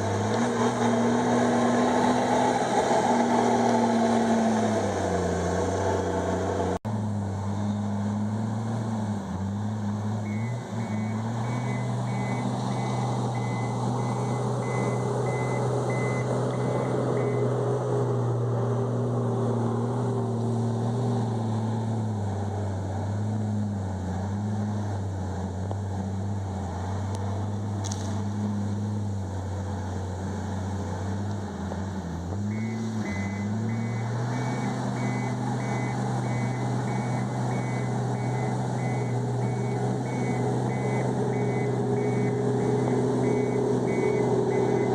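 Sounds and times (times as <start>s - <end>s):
bulldozer diesel engine running: 0.0s - 44.9s
reversing alarm beeping: 10.2s - 17.5s, 32.5s - 44.9s.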